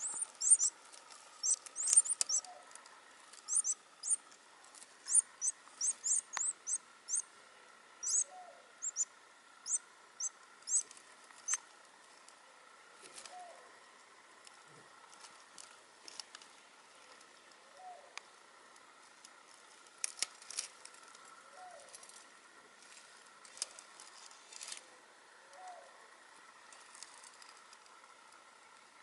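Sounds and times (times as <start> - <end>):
dove cooing: 0.0 - 0.8, 1.4 - 2.8, 3.5 - 4.2, 8.0 - 9.1, 13.2 - 13.7
small birds chirping: 0.0 - 11.7.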